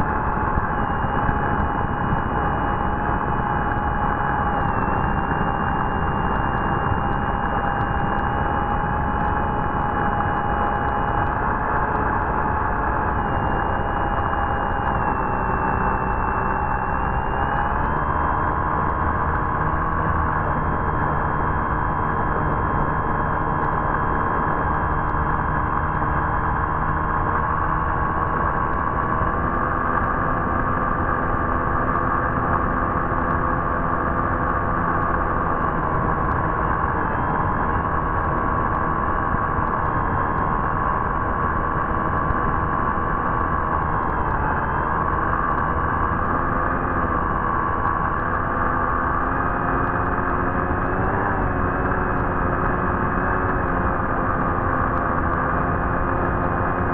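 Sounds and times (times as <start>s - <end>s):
electric motor and propeller whine: 0.0s - 56.9s.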